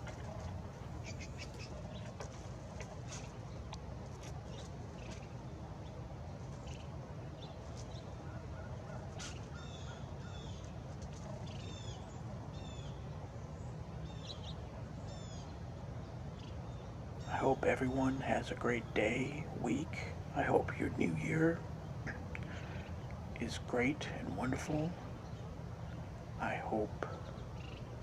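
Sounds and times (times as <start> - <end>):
small birds chirping: 0.0 - 28.0
steady low rumble: 11.6 - 28.0.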